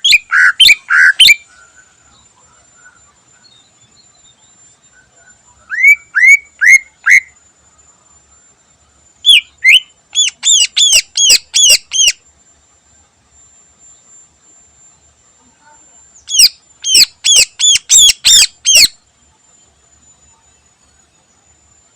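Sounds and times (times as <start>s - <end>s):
bird whistling song: 0.0s - 2.0s, 2.8s - 7.4s, 9.2s - 12.2s, 16.2s - 19.0s.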